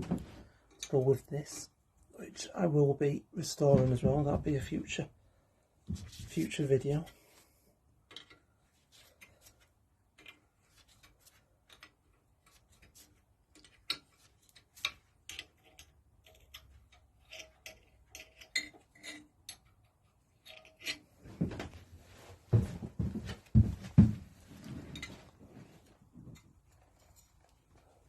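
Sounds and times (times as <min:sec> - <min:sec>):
hand tools clicking and tapping: 0:10.1 - 0:21.1.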